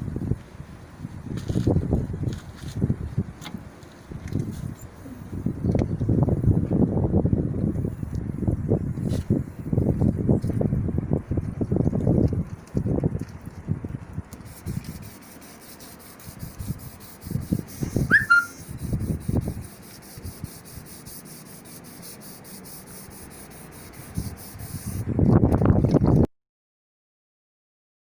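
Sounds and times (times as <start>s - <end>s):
hand sanding strokes: 14.3s - 25.1s
short high chirp: 17.8s - 18.7s.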